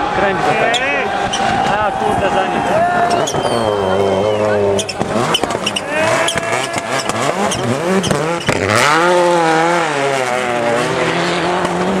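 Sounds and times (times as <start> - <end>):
rally car engine revving: 2.6 - 12.0
exhaust pops: 4.6 - 9.1.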